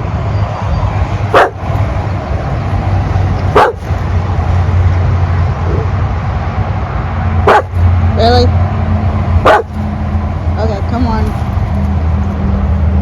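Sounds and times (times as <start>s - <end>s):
steady low rumble: 0.0s - 13.0s
dog barking: 1.3s - 1.6s, 3.5s - 3.9s, 7.4s - 7.8s, 9.4s - 9.8s.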